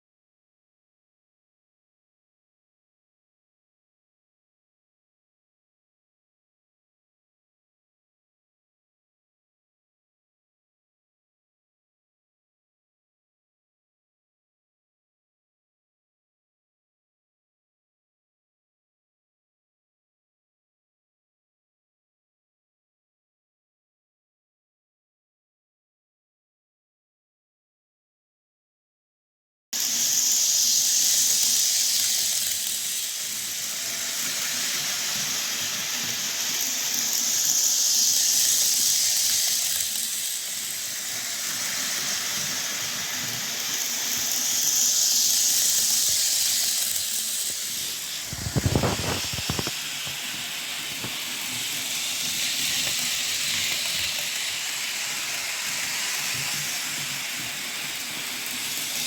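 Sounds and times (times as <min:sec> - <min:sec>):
model train whirring: 0:29.8 - 0:59.0.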